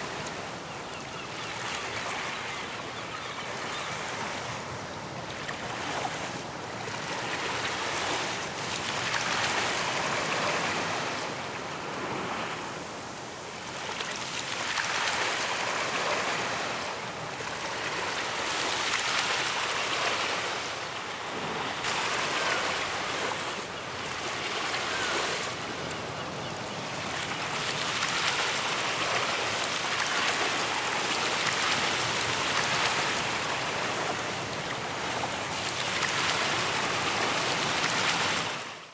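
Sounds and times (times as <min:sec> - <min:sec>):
ocean waves breaking: 0:03.4 - 0:38.9.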